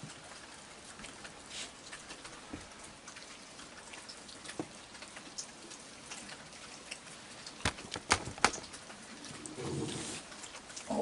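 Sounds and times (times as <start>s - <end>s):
raindrop ticks: 0.0s - 9.6s, 10.2s - 11.0s
rain falling: 0.0s - 11.0s.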